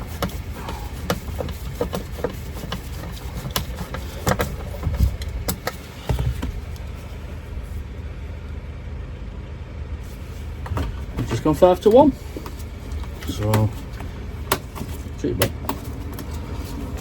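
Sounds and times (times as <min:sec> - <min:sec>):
clicks and knocks of hand work: 0:00.0 - 0:06.5, 0:11.9 - 0:17.0.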